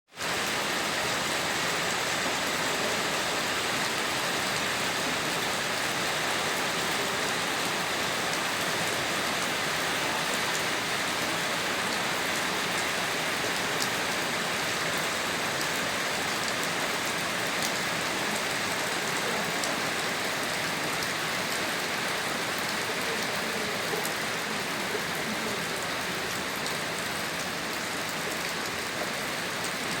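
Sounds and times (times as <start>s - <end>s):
steady rain falling: 0.1s - 30.0s.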